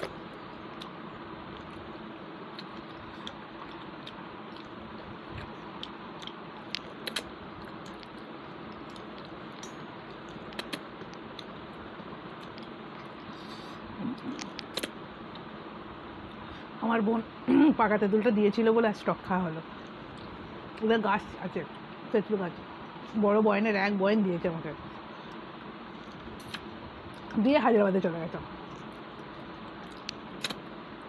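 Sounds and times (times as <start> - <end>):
wet chewing mouth sounds: 0.0 - 15.5, 25.1 - 27.3, 28.6 - 30.6.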